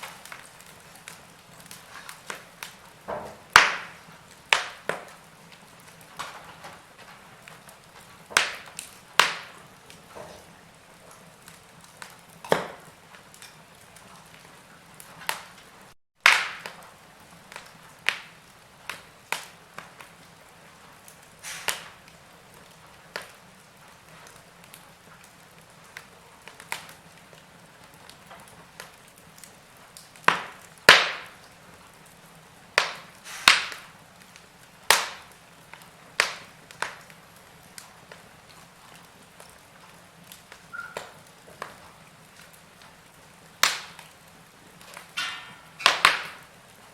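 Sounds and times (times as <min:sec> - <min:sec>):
logs popping and snapping: 0:00.0 - 0:10.5, 0:11.1 - 0:16.8, 0:21.4 - 0:22.0, 0:28.2 - 0:31.5, 0:32.8 - 0:37.2, 0:43.6 - 0:44.2, 0:44.8 - 0:46.4
wood fire crackling: 0:00.0 - 0:46.9.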